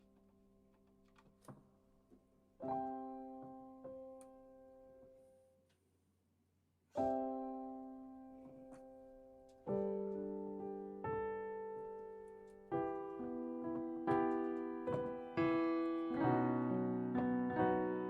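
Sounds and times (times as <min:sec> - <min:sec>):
piano playing slow chords: 0:07.0 - 0:18.0.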